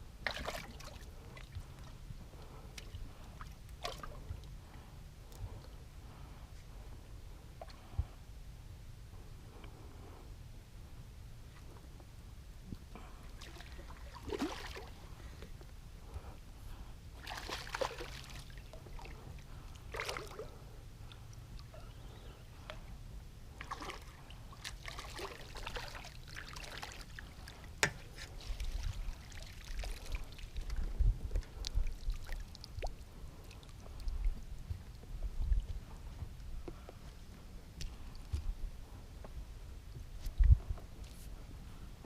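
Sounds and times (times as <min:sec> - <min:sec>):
low steady rumble: 0:00.0 - 0:42.0
water lapping against boat: 0:13.3 - 0:15.4, 0:17.2 - 0:22.9, 0:23.5 - 0:37.0.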